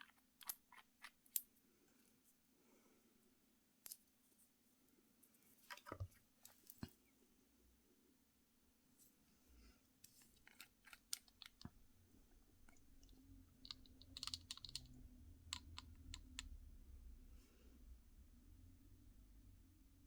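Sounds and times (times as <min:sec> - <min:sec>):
low steady hum: 0:11.1 - 0:20.0
clicks of small hard objects: 0:13.6 - 0:14.9.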